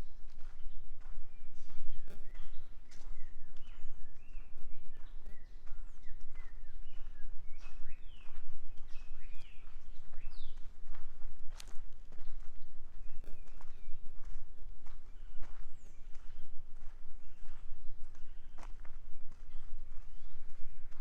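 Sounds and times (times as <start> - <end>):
footsteps on forest trail: 0.0 - 21.0
birds chirping and whistling: 0.5 - 10.6, 19.5 - 21.0.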